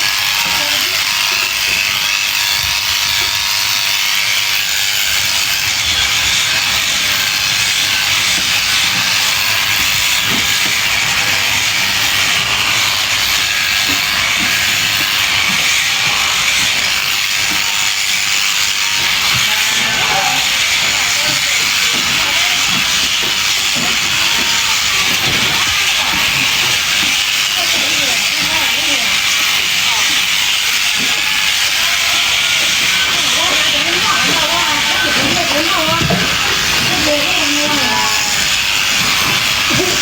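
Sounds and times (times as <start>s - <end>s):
electric clippers shearing fleece: 0.0s - 40.0s.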